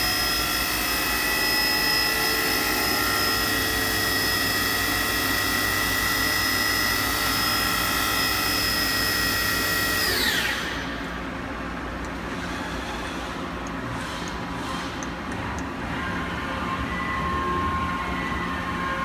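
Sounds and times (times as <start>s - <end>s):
machine spindle whining: 0.0s - 11.3s
machine hum: 0.0s - 19.0s.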